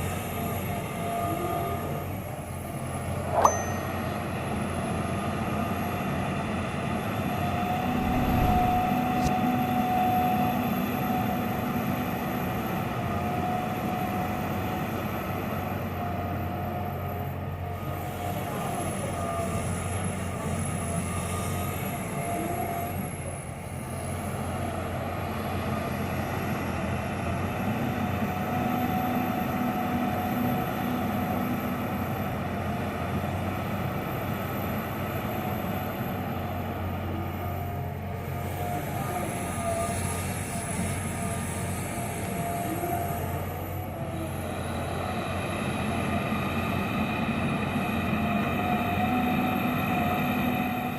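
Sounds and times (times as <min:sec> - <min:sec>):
excavator diesel engine: 0:00.0 - 0:50.9
hydraulic whine: 0:07.0 - 0:10.8.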